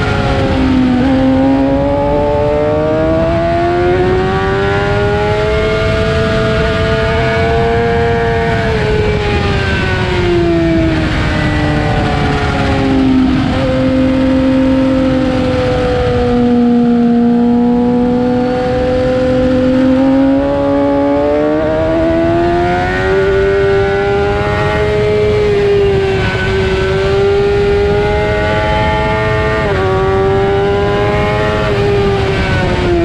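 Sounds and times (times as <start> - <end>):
motorcycle engine revving: 0.0 - 33.0
wind rush over microphone: 0.0 - 33.0.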